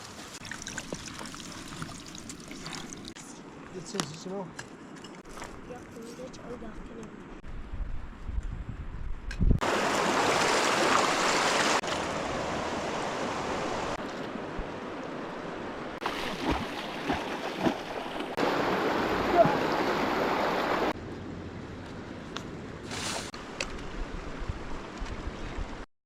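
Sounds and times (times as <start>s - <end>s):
rushing river water: 9.6s - 21.0s.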